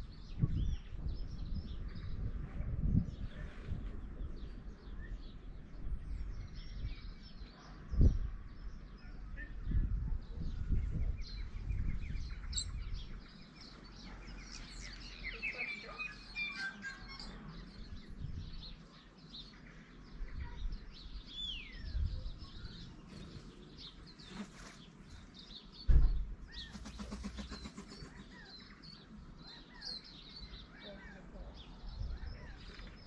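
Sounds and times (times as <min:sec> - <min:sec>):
small birds chirping and twittering: 0:00.0 - 0:33.0
low thump: 0:25.9 - 0:26.4.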